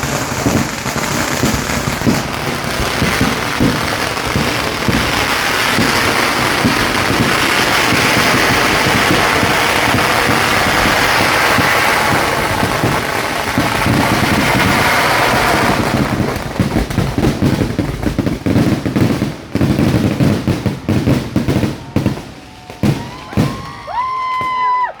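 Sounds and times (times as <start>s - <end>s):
firecrackers crackling: 0.0s - 25.0s
firework bangs: 0.0s - 25.0s.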